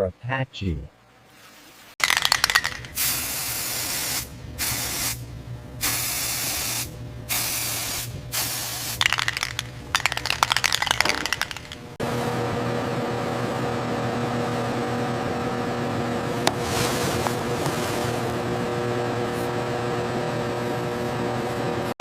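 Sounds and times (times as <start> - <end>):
spraying hiss bursts: 5.8 - 9.0
steady motor hum: 17.2 - 21.9.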